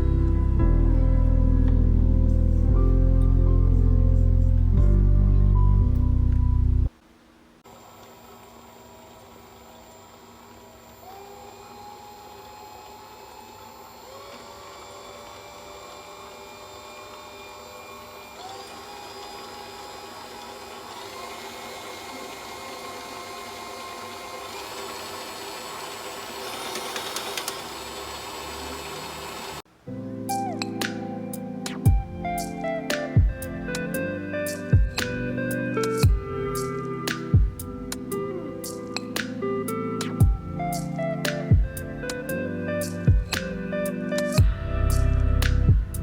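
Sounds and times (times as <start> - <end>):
stand mixer motor whining: 10.0 - 29.6.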